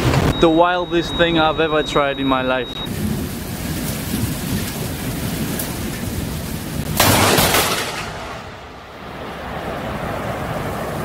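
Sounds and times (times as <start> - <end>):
wind: 0.0 - 11.0
steady rain: 2.8 - 11.0
loud thunder crack: 2.9 - 9.0.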